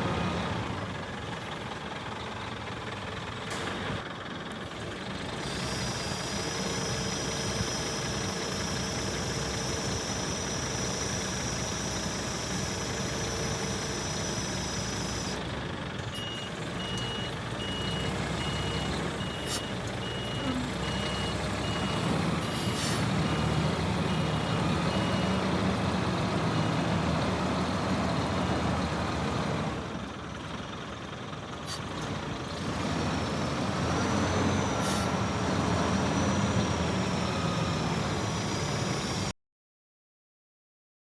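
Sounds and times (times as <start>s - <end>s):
diesel truck engine running: 0.0s - 39.3s
reversing alarm beeping: 5.6s - 15.4s, 16.1s - 25.9s, 34.1s - 39.3s
air brake hisses: 19.3s - 20.8s, 22.4s - 23.1s, 31.6s - 31.9s, 34.8s - 35.2s.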